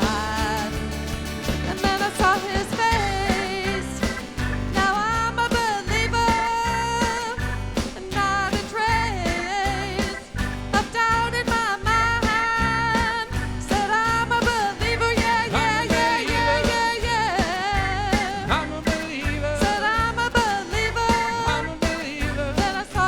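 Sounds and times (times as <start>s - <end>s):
person singing melody: 0.0s - 0.9s
drums and bass beat: 0.0s - 23.0s.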